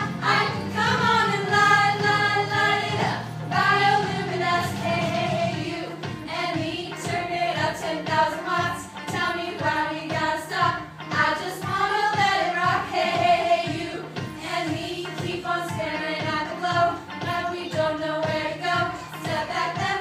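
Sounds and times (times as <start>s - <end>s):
backing music with steady beat: 0.0s - 20.0s.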